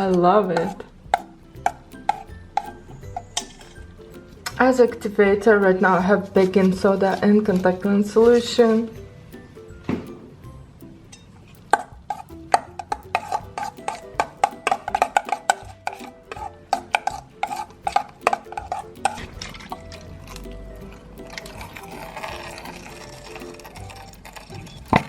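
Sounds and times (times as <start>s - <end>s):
utensil clinking against container: 0.0s - 5.1s, 11.1s - 25.0s
stirring slime: 0.0s - 8.8s, 11.4s - 25.0s.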